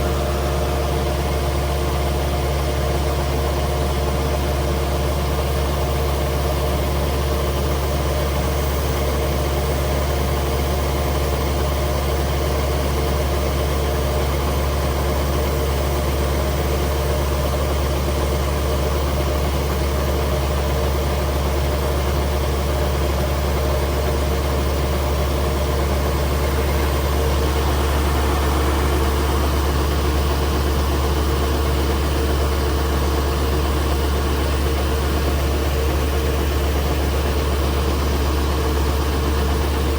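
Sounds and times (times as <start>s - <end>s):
combine harvester diesel engine: 0.0s - 39.9s.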